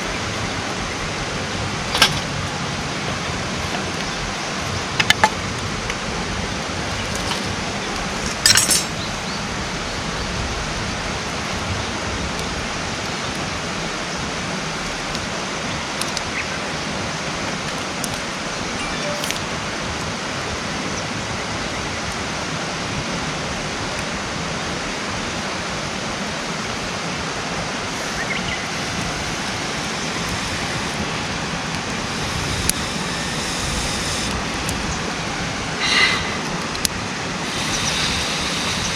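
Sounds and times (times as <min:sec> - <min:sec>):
campfire crackling and popping: 0:10.6 - 0:19.5, 0:27.7 - 0:38.9.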